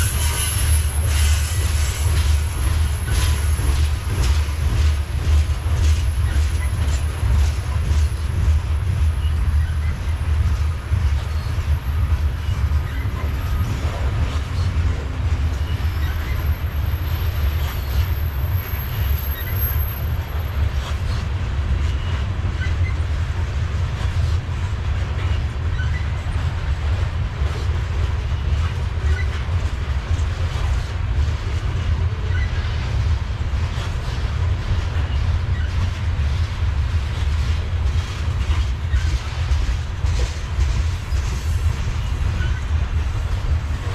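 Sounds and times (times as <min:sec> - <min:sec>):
train wheels rumbling on rail: 0:00.0 - 0:43.9
wheel squeaks: 0:12.4 - 0:14.7, 0:15.5 - 0:20.7, 0:41.1 - 0:42.8.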